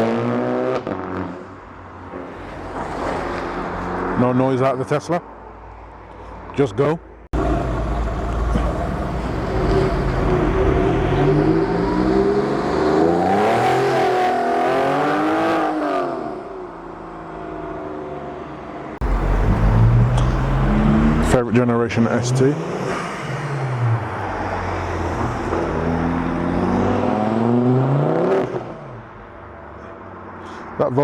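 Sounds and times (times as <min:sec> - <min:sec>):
deeper engine note: 0:07.4 - 0:12.2, 0:19.0 - 0:21.4
car engine accelerating past: 0:19.0 - 0:21.4.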